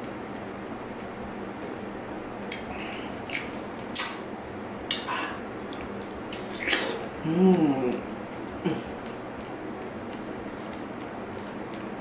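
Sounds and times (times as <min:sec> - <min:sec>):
person chewing wetly: 0:02.5 - 0:04.2, 0:04.8 - 0:09.5.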